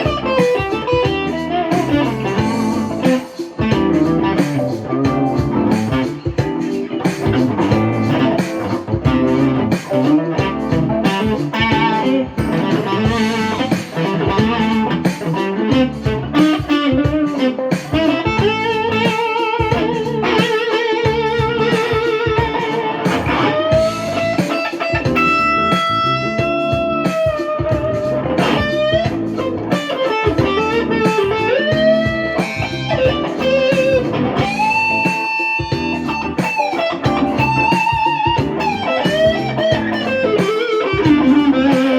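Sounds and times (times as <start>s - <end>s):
electric guitar lead lines: 0.0s - 41.9s.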